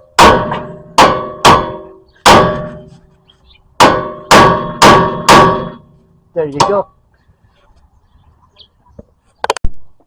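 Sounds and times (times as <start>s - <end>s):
hammer clanging on metal: 0.2s - 3.1s, 3.8s - 6.9s.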